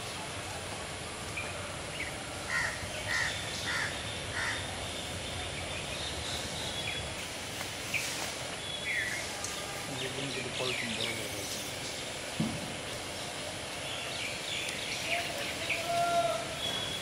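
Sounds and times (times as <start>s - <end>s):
outdoor background noise: 0.0s - 17.0s
bird harsh calls: 2.0s - 7.2s.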